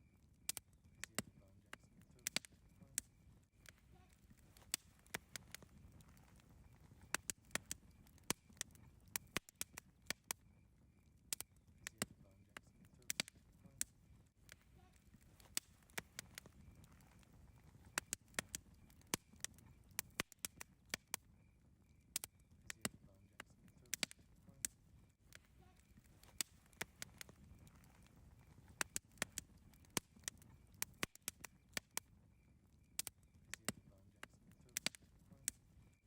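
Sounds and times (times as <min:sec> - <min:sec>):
campfire crackling and popping: 0:00.0 - 0:36.0
low rumble of burning fire: 0:00.0 - 0:36.0.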